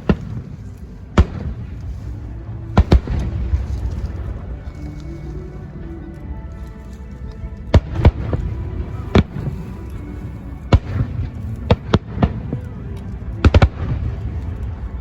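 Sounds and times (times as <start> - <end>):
fireworks bangs: 0.0 - 1.9, 10.7 - 12.7
background music: 0.0 - 15.0.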